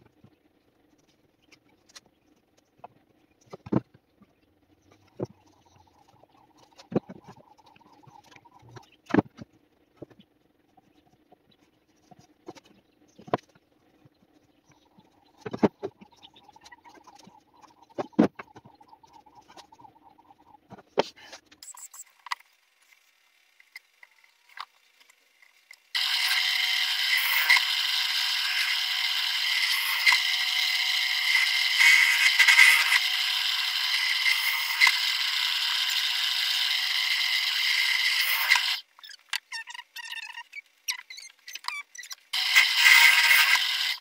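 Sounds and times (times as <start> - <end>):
drill press boring into wood: 26.0 - 38.8, 42.4 - 44.0.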